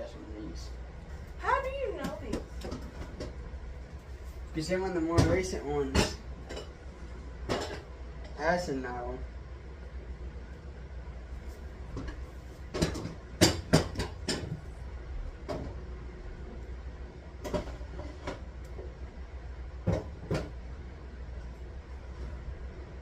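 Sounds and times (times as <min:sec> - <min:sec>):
steady low hum: 0:00.0 - 0:23.0
food containers knocking and clicking: 0:11.9 - 0:14.6, 0:19.8 - 0:20.6.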